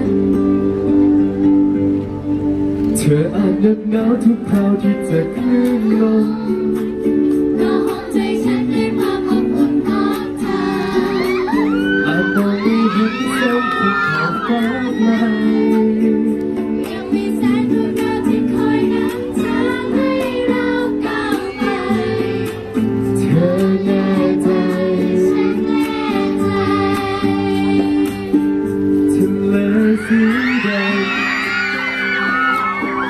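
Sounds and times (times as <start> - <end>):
live pop ballad band: 0.0 - 33.0
person singing: 3.0 - 6.9, 7.6 - 20.4, 23.2 - 25.8, 29.2 - 33.0.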